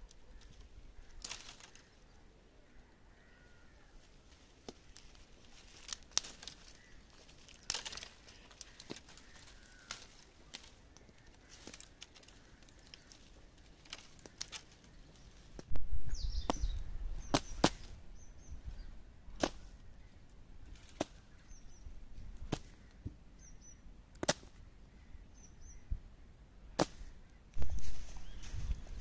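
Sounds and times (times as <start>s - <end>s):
twigs snapping: 0.0s - 2.0s, 4.0s - 15.7s, 16.4s - 18.0s, 19.4s - 19.8s, 20.7s - 21.3s, 22.4s - 23.1s, 24.1s - 24.6s, 26.8s - 29.0s
faint high bird chirps: 16.0s - 19.0s.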